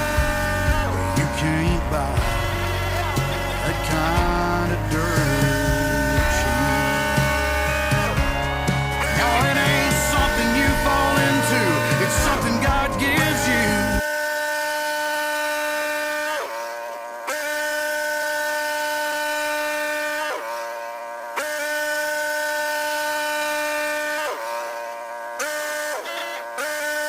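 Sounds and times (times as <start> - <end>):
band sawmill whining: 0.0 - 14.1.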